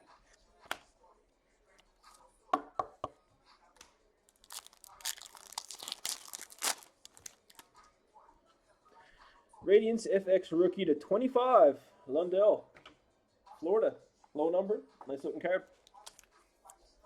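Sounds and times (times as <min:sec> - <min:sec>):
foil pack tearing open: 0:04.3 - 0:07.6
wrapper crinkling: 0:04.3 - 0:07.6.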